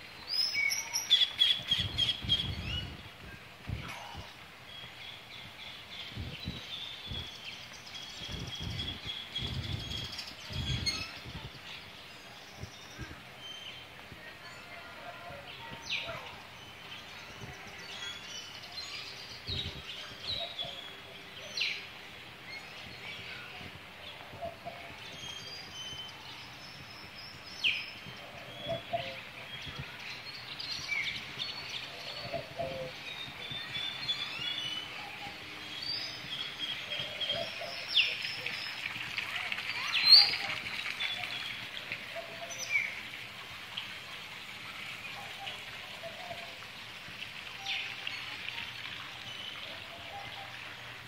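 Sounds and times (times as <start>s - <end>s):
birds chirping: 0.0s - 44.1s.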